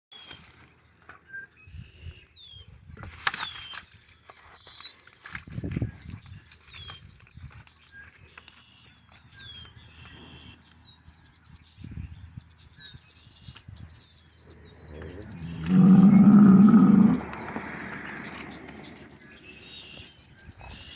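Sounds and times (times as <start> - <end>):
birds chirping and singing: 5.7 - 20.9.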